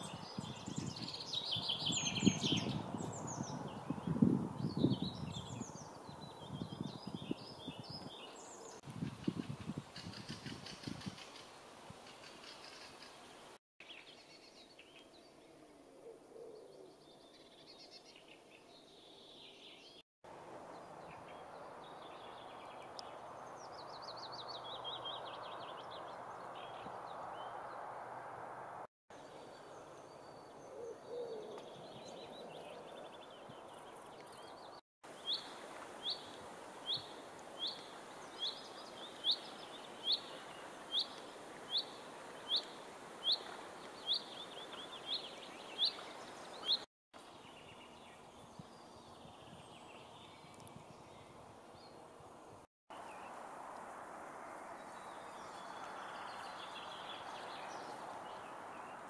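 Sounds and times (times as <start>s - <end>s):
birdsong: 0.0s - 15.6s, 29.1s - 52.1s, 54.7s - 59.0s.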